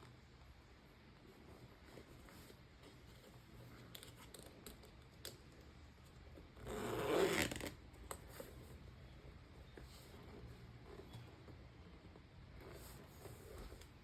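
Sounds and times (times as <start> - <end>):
bag zipper pulled: 6.6 - 7.8.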